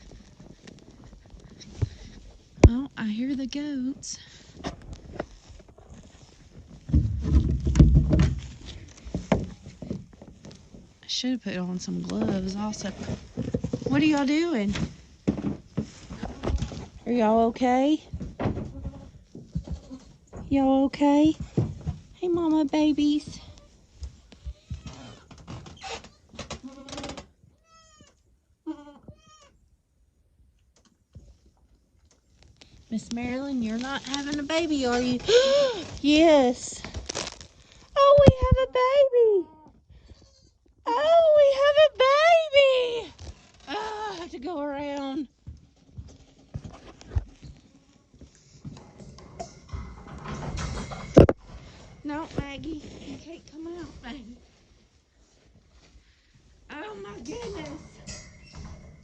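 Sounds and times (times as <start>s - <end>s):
low thumping steps: 0.0s - 11.1s, 11.8s - 24.9s
rustling and knocking: 3.9s - 11.2s, 11.8s - 27.3s, 45.4s - 55.9s.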